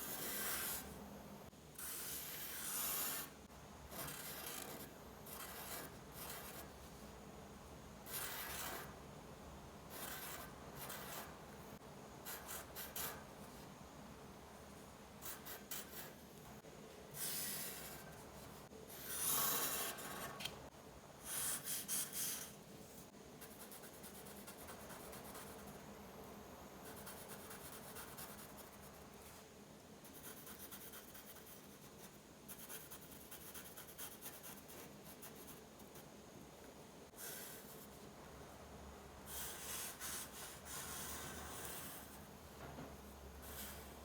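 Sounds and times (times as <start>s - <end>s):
pen scratching on paper: 3.9s - 6.6s, 8.1s - 8.9s, 9.9s - 11.3s, 18.9s - 20.3s, 39.3s - 42.2s.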